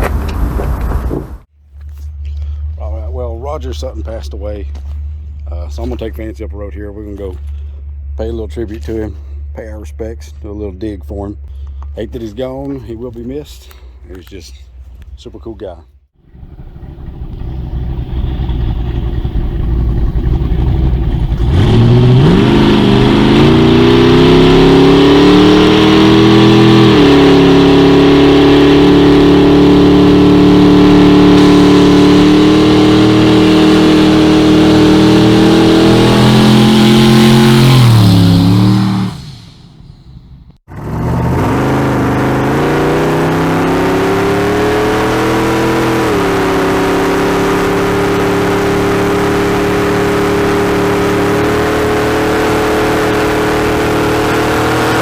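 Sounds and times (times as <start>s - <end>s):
car engine revving: 16.3s - 55.0s.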